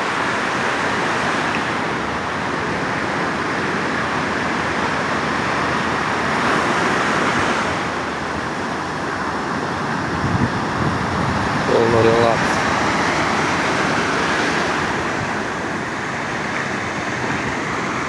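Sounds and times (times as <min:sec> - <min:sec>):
stormy sea waves on beach: 0:00.0 - 0:18.0
wave breaking: 0:00.8 - 0:18.0.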